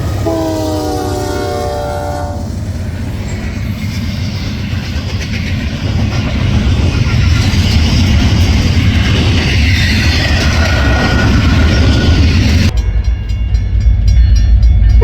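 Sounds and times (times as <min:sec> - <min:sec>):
locomotive air horn: 0:00.0 - 0:02.6
train rumbling past: 0:00.0 - 0:15.0.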